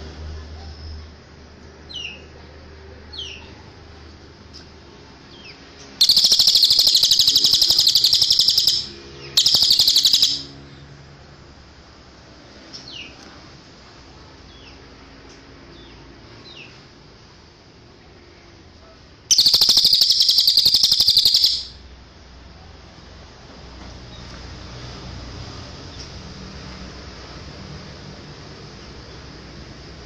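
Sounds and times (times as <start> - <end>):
songbird call notes: 5.4 - 10.6, 19.3 - 21.8
rapid high bird trills: 6.0 - 10.6, 19.3 - 21.8.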